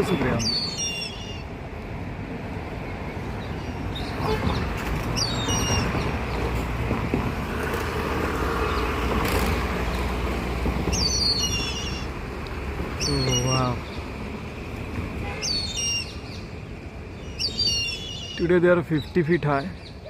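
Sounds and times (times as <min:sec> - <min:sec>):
hornbills squealing calls: 0:00.0 - 0:01.5, 0:10.9 - 0:12.1, 0:13.0 - 0:13.7
passing vehicle engine rumble: 0:00.0 - 0:18.5.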